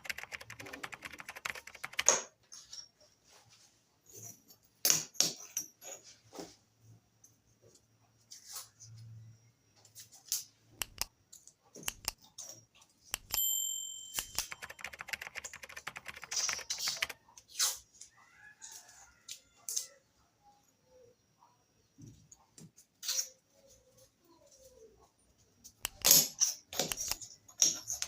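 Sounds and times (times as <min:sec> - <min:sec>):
small hard objects clicking: 0:00.0 - 0:02.2, 0:10.8 - 0:11.1, 0:11.9 - 0:12.2, 0:13.2 - 0:13.4, 0:14.2 - 0:17.2, 0:25.8 - 0:26.2, 0:26.8 - 0:28.0
rapid clicking and rattling: 0:00.0 - 0:02.3, 0:14.2 - 0:17.2
ringing metallic clink: 0:13.3 - 0:14.3.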